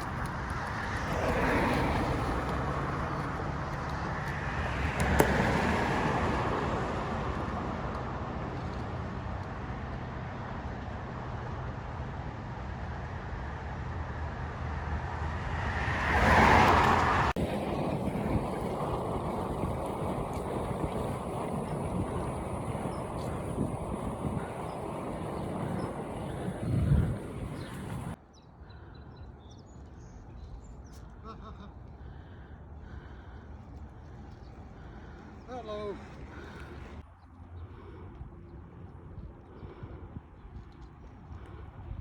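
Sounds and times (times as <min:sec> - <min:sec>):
cars passing by: 0:00.0 - 0:42.0
traffic hum: 0:00.0 - 0:42.0.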